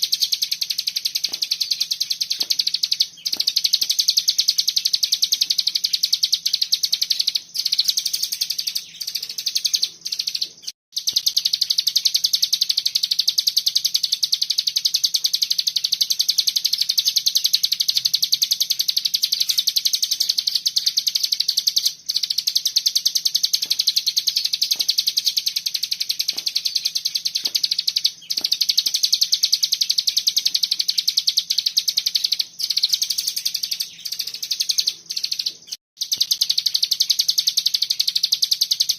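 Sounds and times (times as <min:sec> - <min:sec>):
songbird trilling: 0:00.0 - 0:38.9.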